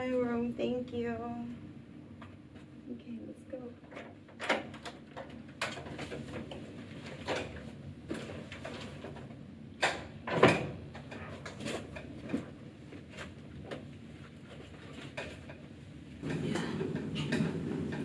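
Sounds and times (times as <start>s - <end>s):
low steady hum: 0.0s - 18.0s
objects knocking and clunking: 16.2s - 18.0s.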